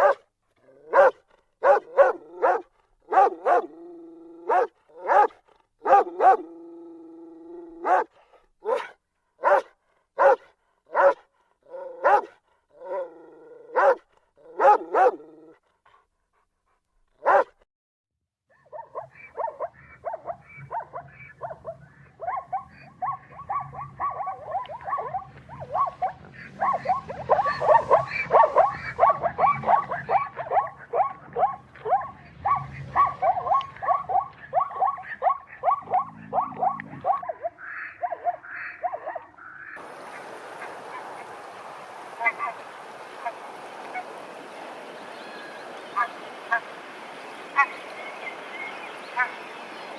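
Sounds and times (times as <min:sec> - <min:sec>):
dog barking: 0:00.0 - 0:00.2, 0:00.8 - 0:03.8, 0:04.5 - 0:06.5, 0:07.8 - 0:13.1, 0:13.7 - 0:15.2, 0:17.2 - 0:17.6, 0:18.5 - 0:39.8, 0:42.2 - 0:44.2, 0:46.0 - 0:46.6
low hum: 0:20.1 - 0:37.6.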